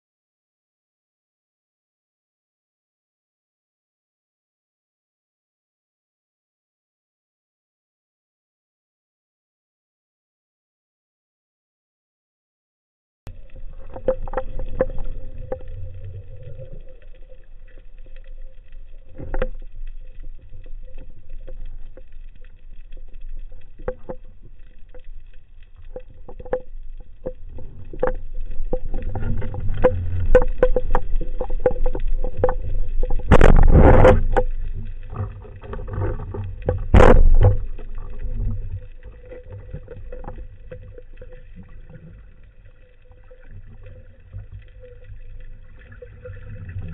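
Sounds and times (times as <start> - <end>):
scattered clicks underwater: 13.3 - 46.9
underwater churning: 13.3 - 46.9.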